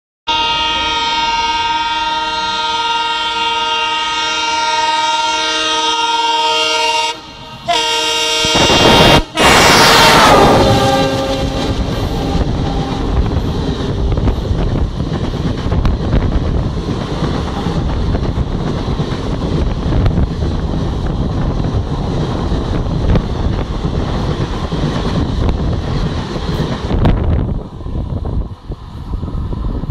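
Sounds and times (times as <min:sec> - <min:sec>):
locomotive horn: 0:00.3 - 0:13.4
train wheel and rail rumble: 0:00.3 - 0:29.9
wind on microphone: 0:08.3 - 0:29.9.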